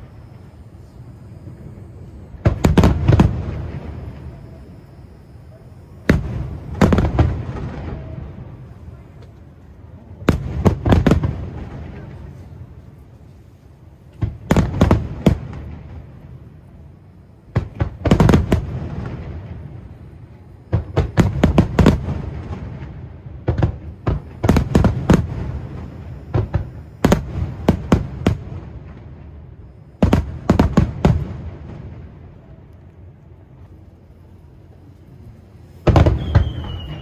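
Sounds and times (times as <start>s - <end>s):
firework shells bursting: 0.0s - 9.4s, 35.8s - 37.0s.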